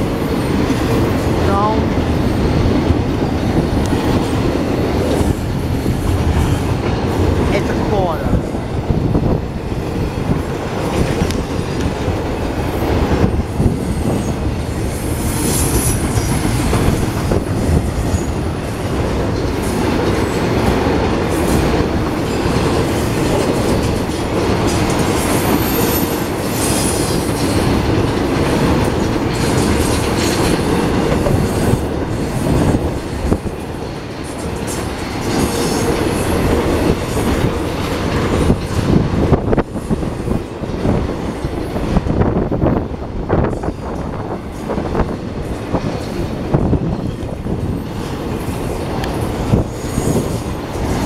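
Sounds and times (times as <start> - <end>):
freight train wheels rumbling: 0.0 - 51.0
clatter over rail joints: 15.5 - 51.0.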